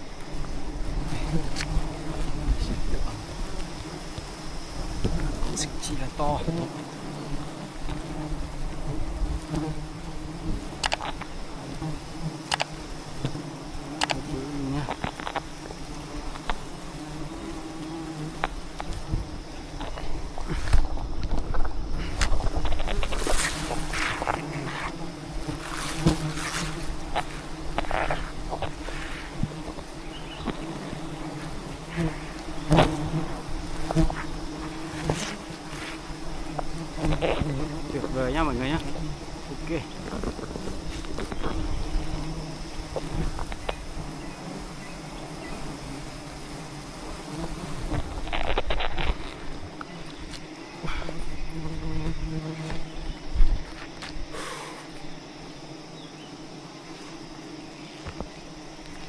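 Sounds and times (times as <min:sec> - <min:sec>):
bees buzzing: 0:00.0 - 0:59.0
sharp clicks: 0:10.7 - 0:11.3, 0:12.4 - 0:12.8, 0:14.0 - 0:14.2.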